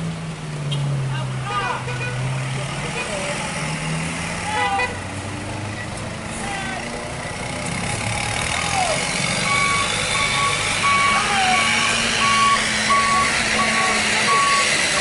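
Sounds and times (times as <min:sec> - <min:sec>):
truck engine running: 0:04.8 - 0:15.0
truck reversing alarm beeping: 0:08.6 - 0:15.0.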